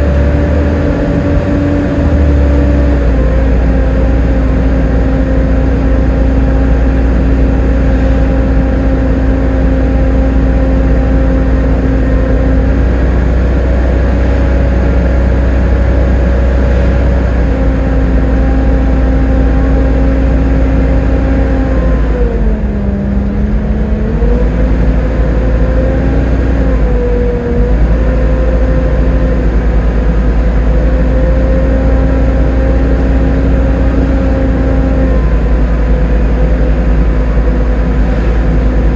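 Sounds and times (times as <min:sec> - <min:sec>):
bus engine whine and rumble: 0:00.0 - 0:38.9.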